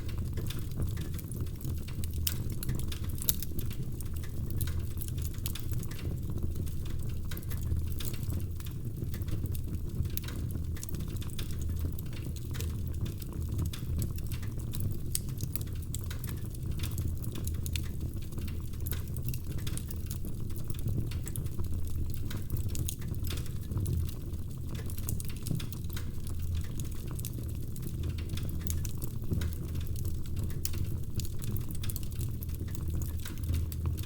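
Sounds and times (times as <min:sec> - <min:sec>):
fire crackling and popping: 0:00.0 - 0:34.0
fire rumbling in a fireplace: 0:00.0 - 0:34.0.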